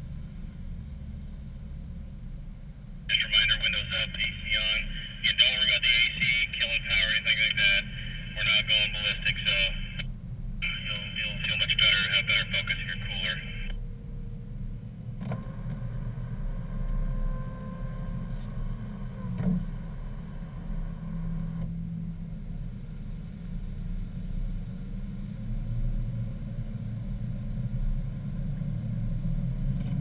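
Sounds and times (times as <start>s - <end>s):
car engine low drone: 0.0s - 30.0s.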